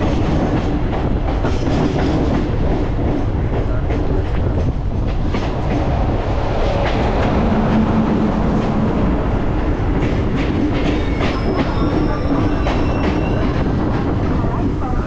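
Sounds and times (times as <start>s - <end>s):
train rumbling: 0.0s - 15.0s
high wheel squeals: 11.0s - 13.6s.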